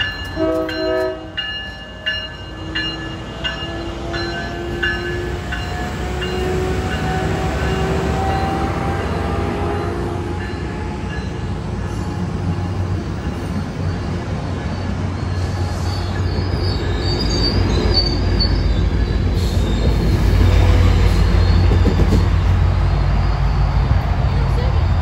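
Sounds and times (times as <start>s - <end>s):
train rumbling past: 0.0s - 25.0s
high-pitched wheel squeal: 14.7s - 23.5s.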